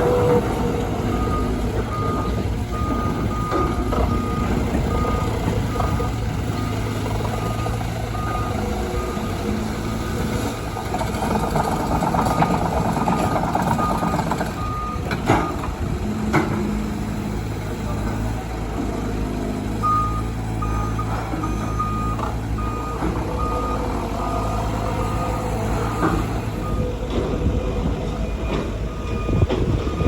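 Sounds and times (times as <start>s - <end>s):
diesel engine hum: 0.0s - 30.0s
reversing alarm beeps: 1.1s - 10.1s, 19.8s - 26.9s, 28.8s - 30.0s.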